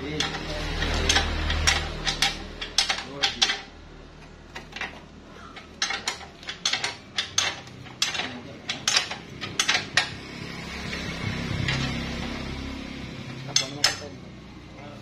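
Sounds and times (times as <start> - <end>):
metal tools clinking and knocking: 0.0 - 3.7, 4.5 - 10.2, 13.4 - 14.1.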